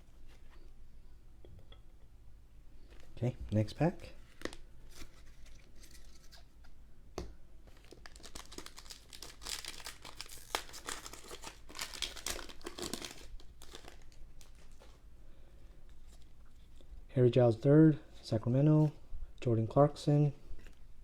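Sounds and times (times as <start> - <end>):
wrapper being torn and crinkled: 7.7 - 14.9.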